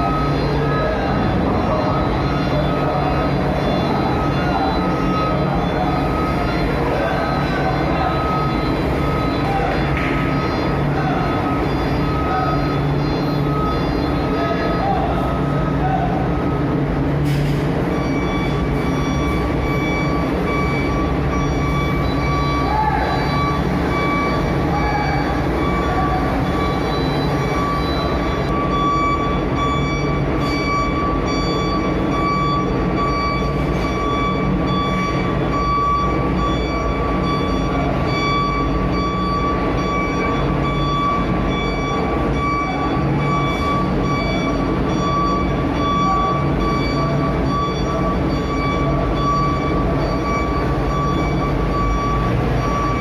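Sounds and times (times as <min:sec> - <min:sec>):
high-pitched whine: 0:00.0 - 0:53.0
truck engines rumbling: 0:00.0 - 0:53.0.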